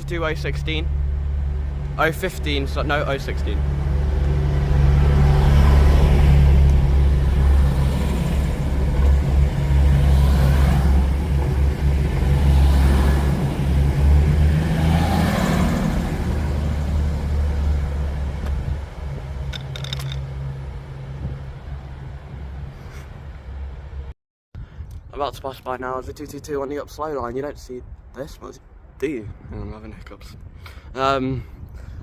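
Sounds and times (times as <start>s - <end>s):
train wheels rumbling on rail: 0.0s - 21.5s
diesel engines droning: 0.0s - 24.1s.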